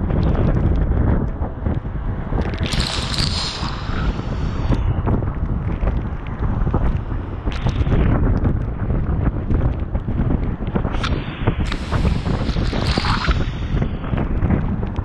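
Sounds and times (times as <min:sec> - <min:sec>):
strong wind buffeting microphone: 0:00.0 - 0:15.0
hissing rush: 0:02.7 - 0:04.9, 0:11.7 - 0:14.0.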